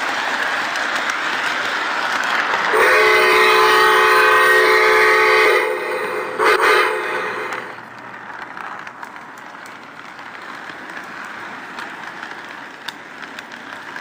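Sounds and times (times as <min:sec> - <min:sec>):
model train whirring rattle: 0:00.0 - 0:14.0
train whistle: 0:02.7 - 0:07.8.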